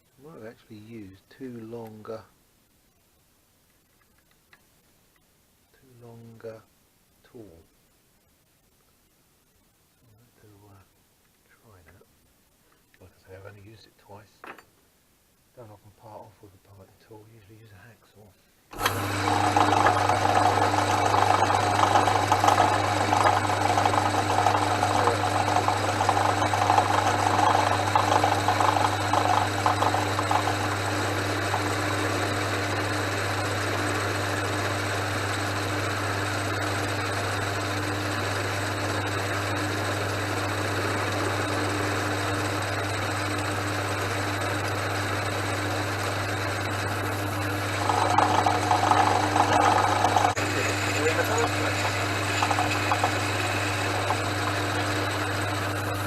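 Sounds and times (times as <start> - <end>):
lathe motor hum: 18.7 - 56.0
tool cutting metal bar: 18.8 - 32.4, 47.0 - 56.0.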